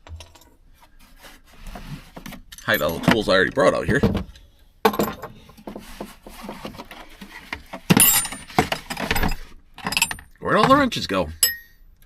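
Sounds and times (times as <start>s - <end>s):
metal tools clattering in toolbox: 2.4s - 4.2s, 4.9s - 5.6s, 7.9s - 11.8s.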